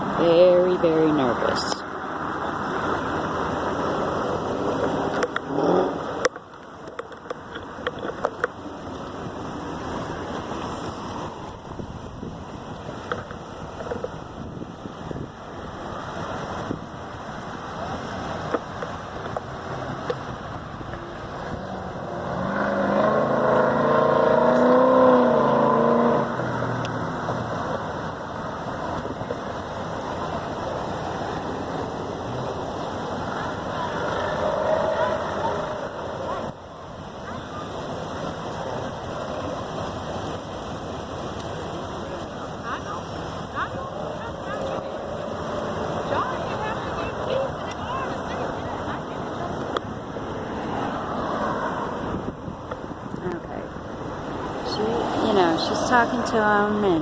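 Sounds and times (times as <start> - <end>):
steady traffic: 0.0 - 57.0
vehicle engine and road noise: 0.0 - 57.0
wind noise: 10.7 - 22.1, 45.4 - 55.6
vehicle driving past: 21.3 - 27.7.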